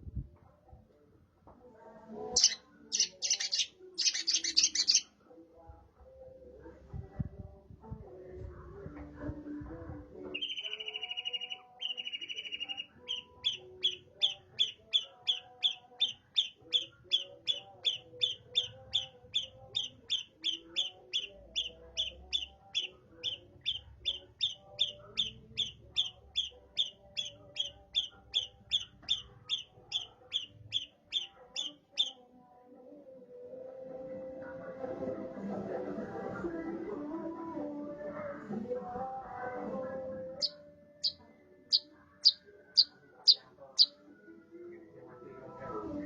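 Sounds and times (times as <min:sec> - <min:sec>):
bird singing: 0:02.4 - 0:05.1, 0:10.3 - 0:32.2, 0:40.4 - 0:44.0.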